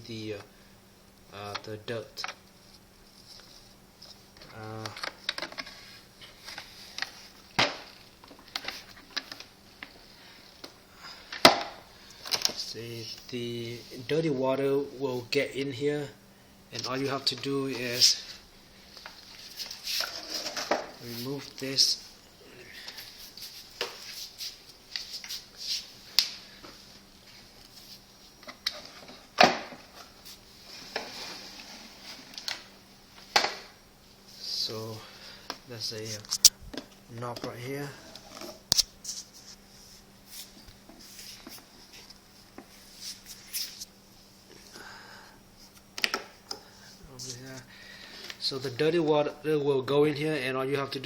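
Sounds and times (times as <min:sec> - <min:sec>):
clicks and knocks of plastic parts: 0:04.4 - 0:05.7.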